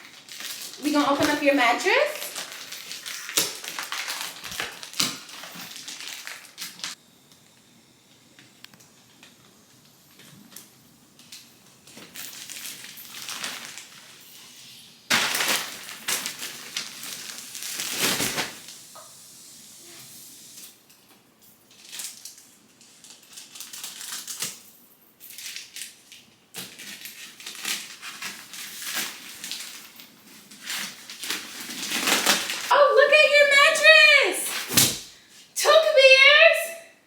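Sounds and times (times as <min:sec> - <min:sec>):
plastic packaging crinkling: 0:00.0 - 0:07.0, 0:11.2 - 0:14.3, 0:15.1 - 0:18.7, 0:21.7 - 0:24.6, 0:25.3 - 0:36.1.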